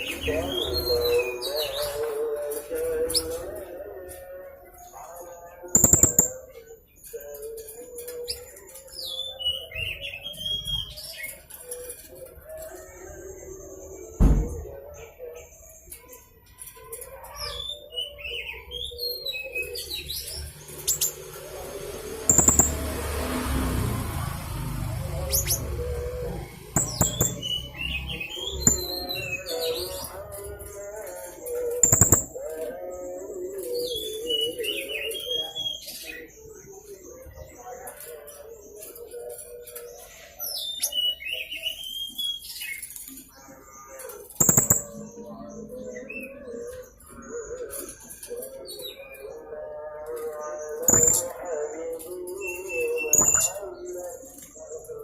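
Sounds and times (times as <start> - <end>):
sharp clicks: 5.8 - 6.4, 22.3 - 22.9, 26.7 - 27.6, 31.8 - 32.4.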